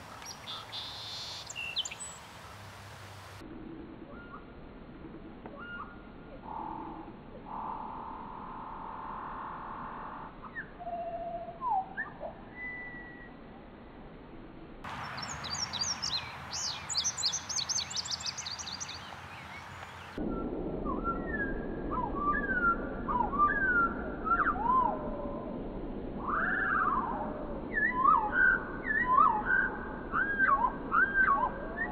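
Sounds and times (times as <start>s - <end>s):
high bird chirps: 0.3s - 2.2s, 14.9s - 20.2s
bird whistling: 10.5s - 13.3s, 15.1s - 20.0s, 26.3s - 31.9s.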